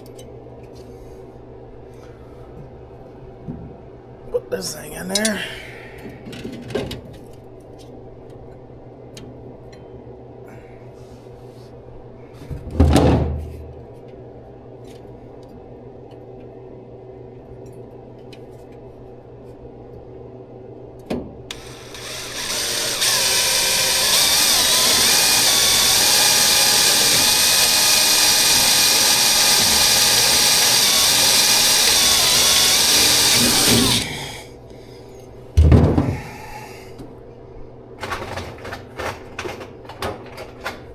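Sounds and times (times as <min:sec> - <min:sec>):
power tool running: 0:21.5 - 0:34.5
dull thump: 0:35.6 - 0:36.2.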